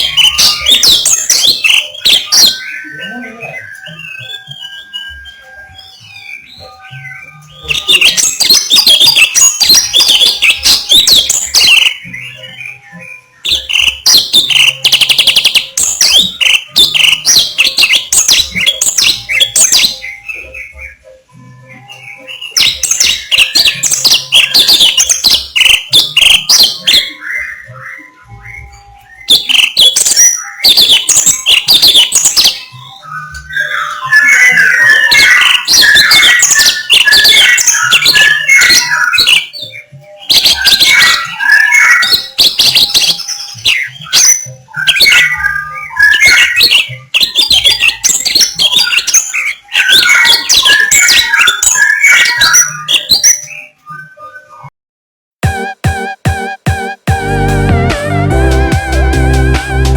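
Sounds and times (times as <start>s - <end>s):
fast low chattering bird notes: 0.0s - 12.4s
songbird singing: 0.0s - 53.9s.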